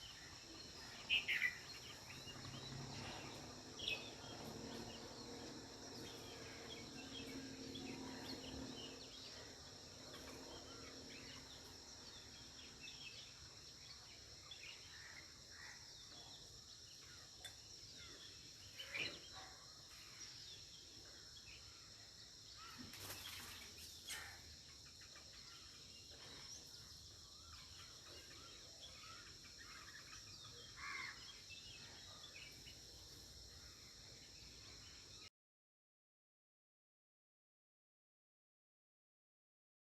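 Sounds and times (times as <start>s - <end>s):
high insect drone: 0.0s - 35.2s.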